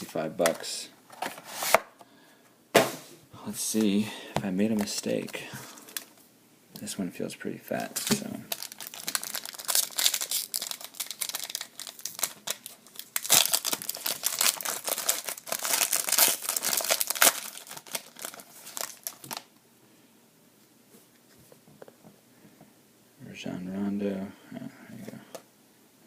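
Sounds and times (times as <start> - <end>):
wrapper crinkling and tearing: 8.0 - 19.5.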